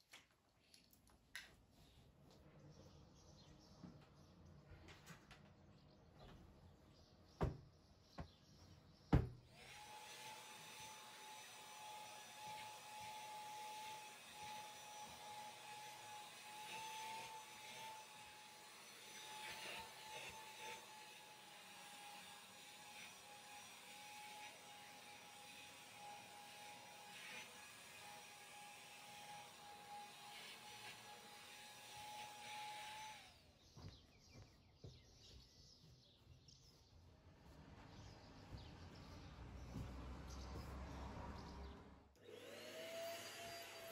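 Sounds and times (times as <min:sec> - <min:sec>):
soft knocks: 0:07.4 - 0:08.4, 0:09.1 - 0:09.4
sharp knocks: 0:09.1 - 0:09.4
appliance motor whining: 0:09.5 - 0:33.4, 0:42.2 - 0:43.9.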